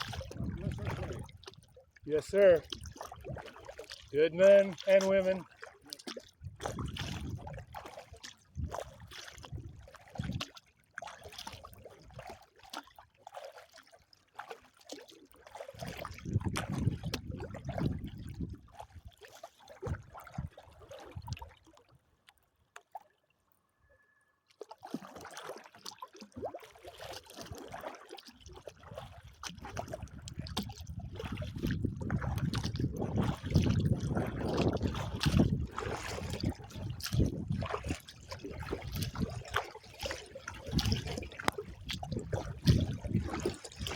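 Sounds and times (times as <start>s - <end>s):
wind gusting on microphone: 0.0s - 1.3s, 16.2s - 18.6s, 31.0s - 37.9s
water trickling and splashing: 0.0s - 23.6s, 24.5s - 43.9s
kayak paddling: 0.0s - 43.9s.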